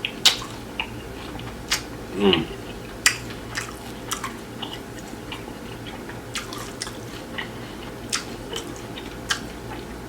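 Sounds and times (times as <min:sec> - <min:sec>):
wet mouth sounds: 0:00.2 - 0:10.0.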